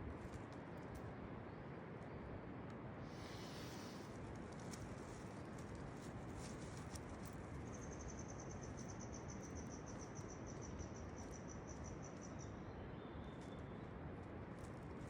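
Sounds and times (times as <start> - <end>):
outdoor ambience hiss: 0.0 - 15.0.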